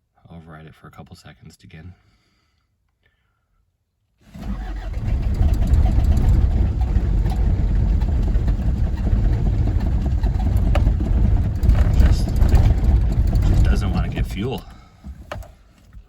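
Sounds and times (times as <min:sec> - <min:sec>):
starter cranking diesel engine: 0:04.3 - 0:15.6.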